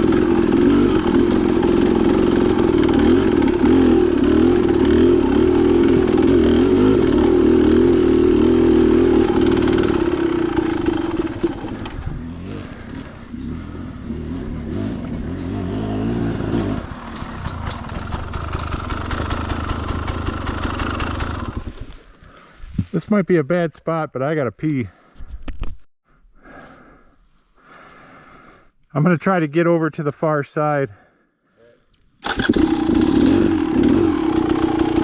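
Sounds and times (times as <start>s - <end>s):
dirt bike engine running: 0.0s - 21.9s, 32.2s - 35.0s.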